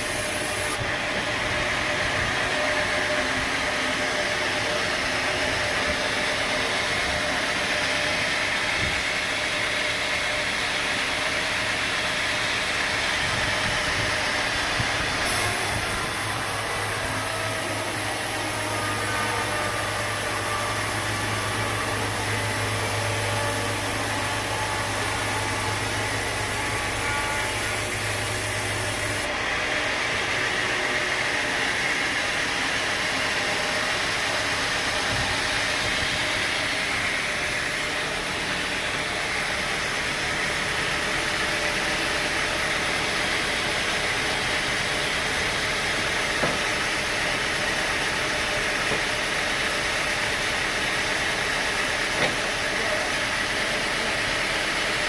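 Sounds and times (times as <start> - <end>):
sawmill machinery droning: 0.0 - 55.0.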